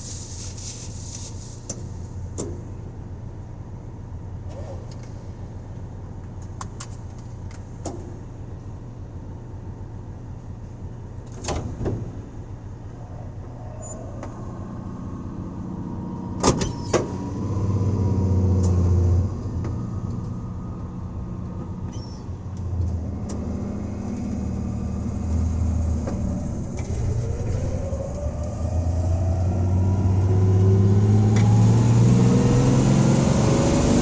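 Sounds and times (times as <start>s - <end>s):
van engine and road drone: 0.0s - 34.0s.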